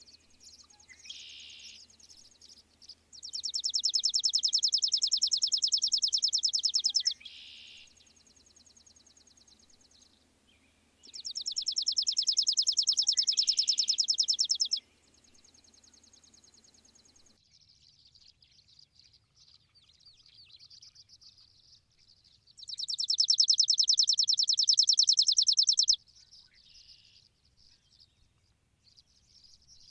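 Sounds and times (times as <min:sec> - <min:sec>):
faint bird chirping: 0:00.0 - 0:29.9
bird rapid high trills: 0:11.1 - 0:14.8, 0:22.8 - 0:26.0.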